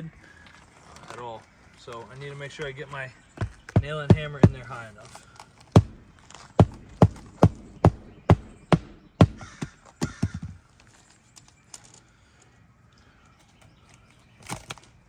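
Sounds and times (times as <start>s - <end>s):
rustle: 0.0s - 3.0s, 9.8s - 15.0s
hammer striking nail: 3.4s - 4.8s, 5.8s - 10.6s.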